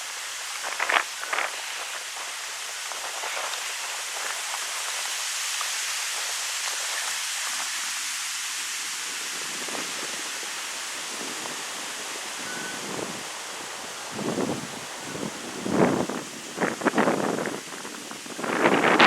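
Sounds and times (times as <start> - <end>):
wind rushing through trees: 0.0 - 19.0
leaves rustling: 9.0 - 19.0.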